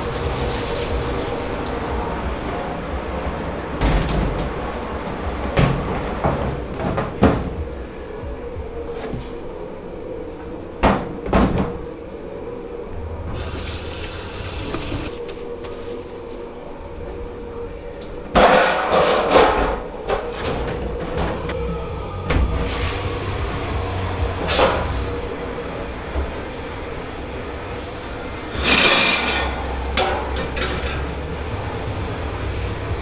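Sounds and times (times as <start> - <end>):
water spraying: 0.0 - 6.7, 13.3 - 15.1
steady hum: 0.0 - 17.8
dishes and pans clattering: 3.2 - 7.7, 18.4 - 21.5, 28.5 - 31.6.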